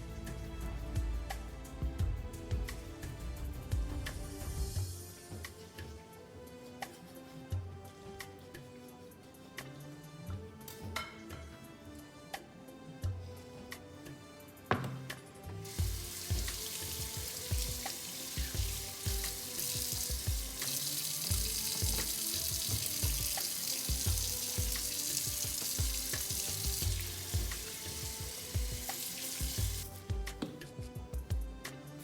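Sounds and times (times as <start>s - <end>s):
food sizzling in hot oil: 15.6s - 30.0s
background music with bass beat: 15.8s - 19.4s, 20.0s - 20.6s.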